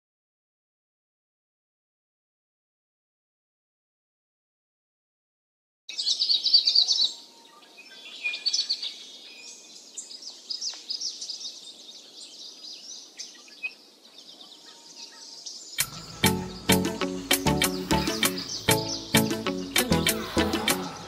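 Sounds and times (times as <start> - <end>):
birds chirping: 5.9 - 21.0.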